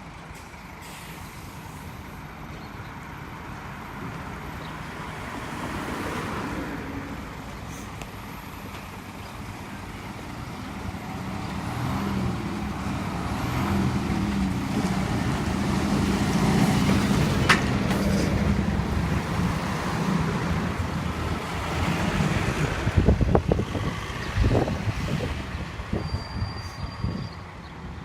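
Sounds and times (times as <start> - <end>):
diesel coach engine running: 6.8 - 26.5.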